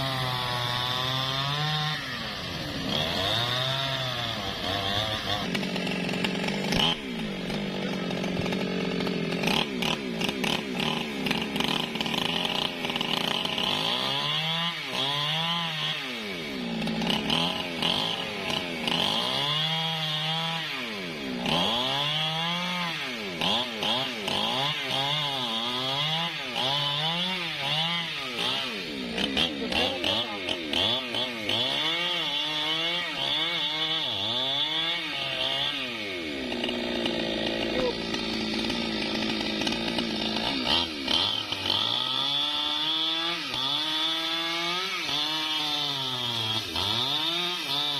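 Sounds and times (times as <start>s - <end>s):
chainsaw revving while cutting wood: 0.0s - 47.9s.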